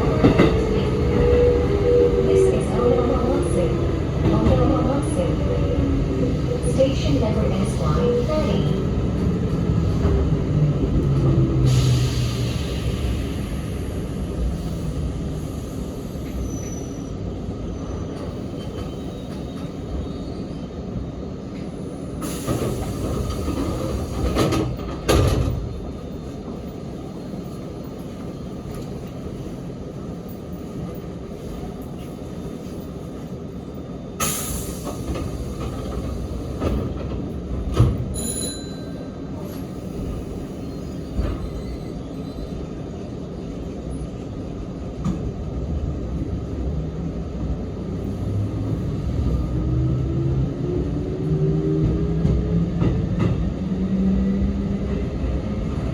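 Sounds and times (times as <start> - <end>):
train clatters: 0.0 - 1.3, 21.5 - 29.4, 30.2 - 42.6, 51.2 - 55.9
train wheels on rails: 0.0 - 17.3, 21.4 - 55.9
train car body rumbling: 21.6 - 26.8, 33.7 - 38.8.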